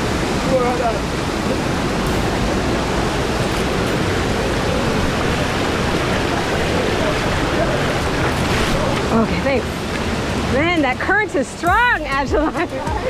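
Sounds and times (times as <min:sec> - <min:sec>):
fast-flowing river water: 0:00.0 - 0:13.0
waterfall rushing: 0:00.0 - 0:13.0.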